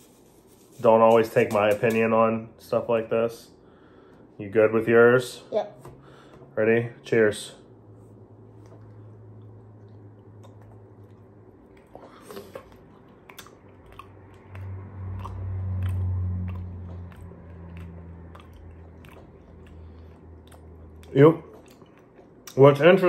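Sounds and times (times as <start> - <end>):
low hummed sound: 0.0 - 23.0
wet mouth clicks and smacks: 8.6 - 22.6
people chewing candy: 8.6 - 22.7.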